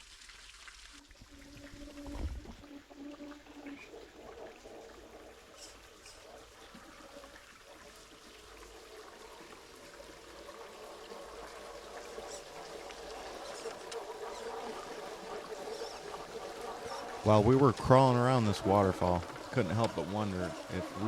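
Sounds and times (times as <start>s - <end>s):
small waterfall splashing: 0.0s - 21.0s.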